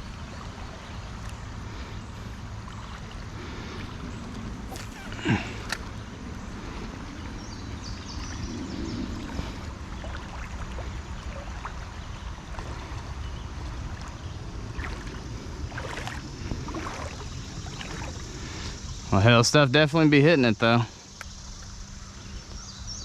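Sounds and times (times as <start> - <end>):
shallow creek water: 0.0 - 23.0.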